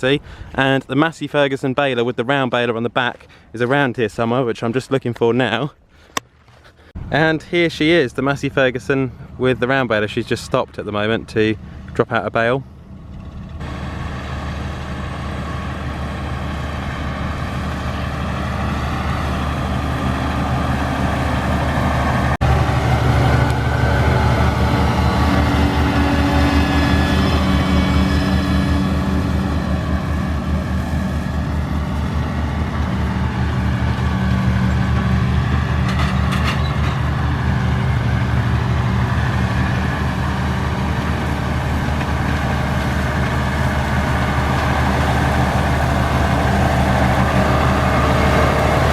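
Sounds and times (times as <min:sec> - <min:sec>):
heavy vehicle engine running: 0:08.7 - 0:12.0, 0:12.6 - 0:48.9
high whine: 0:12.8 - 0:48.9.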